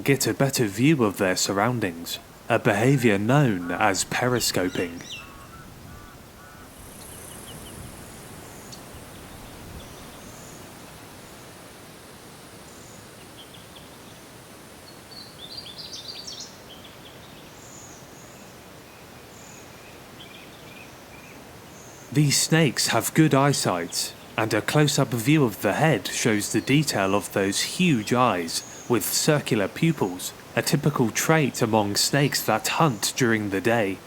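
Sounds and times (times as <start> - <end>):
small birds chirping: 0.0 - 10.7, 19.3 - 34.0
background hiss: 0.0 - 34.0.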